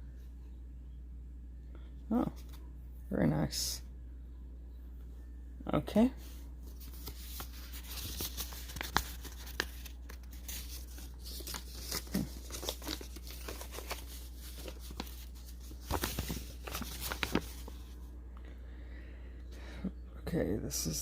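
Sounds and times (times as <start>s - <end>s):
paper packaging crinkling: 6.7s - 18.0s.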